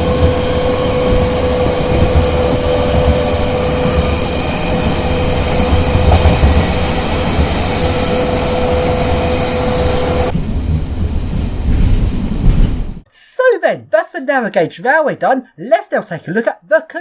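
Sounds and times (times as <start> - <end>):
electric train running: 0.0 - 10.4.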